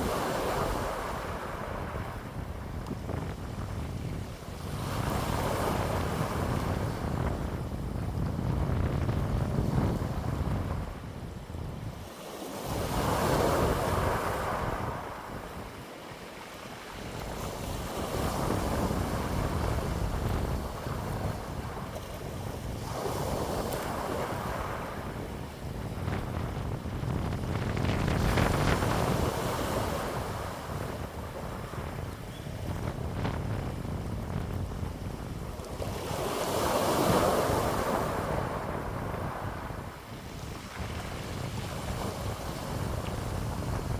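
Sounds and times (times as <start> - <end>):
wind blowing in gusts: 0.0 - 43.9
wind buffeting microphone: 0.0 - 43.9.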